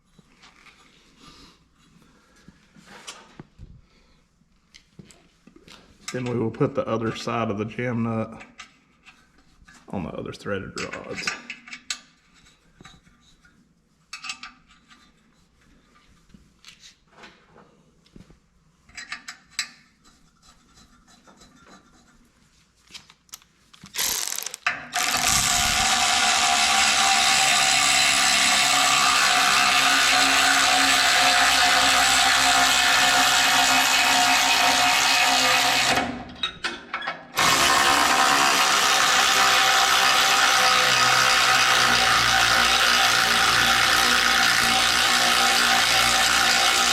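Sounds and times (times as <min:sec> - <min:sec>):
power driver whirring: 0:24.0 - 0:36.2, 0:37.4 - 0:46.9.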